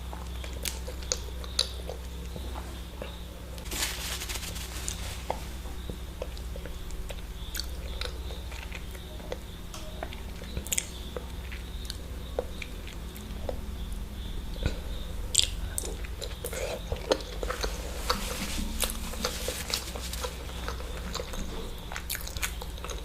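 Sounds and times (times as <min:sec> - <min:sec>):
steady low hum: 0:00.0 - 0:23.0
person chewing food: 0:14.6 - 0:23.0.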